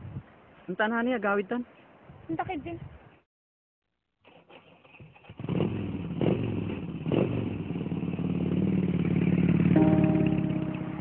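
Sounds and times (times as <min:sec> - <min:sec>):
engine running: 0:05.4 - 0:11.0.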